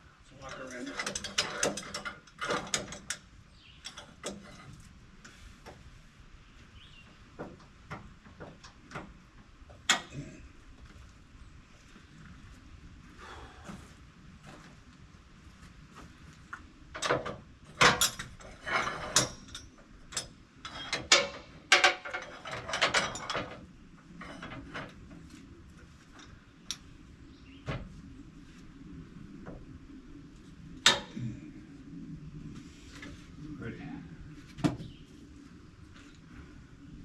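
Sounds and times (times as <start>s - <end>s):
metal chain clanking and knocking: 0.5s - 4.8s, 17.0s - 25.0s.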